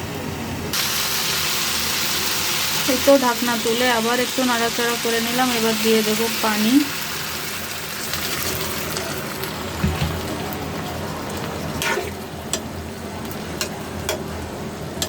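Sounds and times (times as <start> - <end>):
food sizzling in a pan: 0.7 - 12.7.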